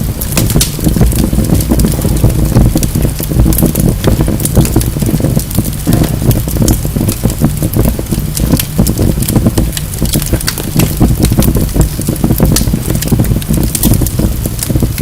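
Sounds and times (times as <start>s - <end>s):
logs crackling and popping: 0.0s - 15.0s
low rumble of flames: 0.0s - 15.0s.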